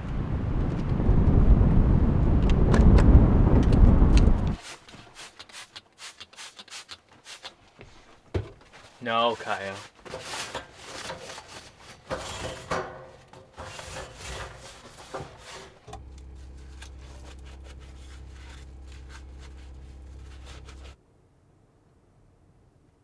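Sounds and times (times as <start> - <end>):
rubbing and rustling: 4.2 - 21.0
steady low hum: 13.4 - 21.0.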